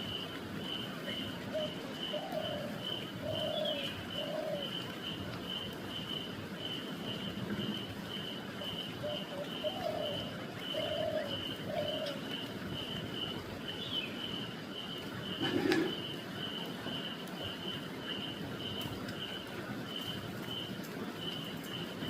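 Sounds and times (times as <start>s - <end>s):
dove cooing: 1.0s - 4.9s, 9.0s - 12.8s, 15.2s - 16.2s.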